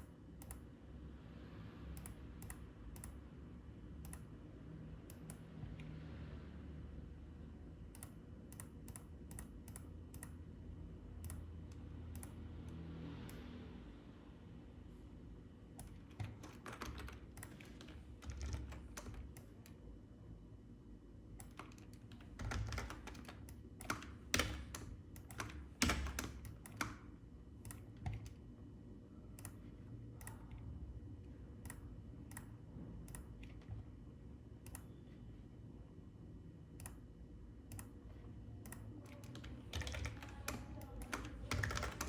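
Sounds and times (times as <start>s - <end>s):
low steady hum: 0.0s - 42.0s
computer keyboard typing: 7.9s - 10.4s, 11.2s - 12.4s, 15.7s - 19.8s, 21.3s - 28.4s, 29.3s - 30.7s, 38.6s - 42.0s.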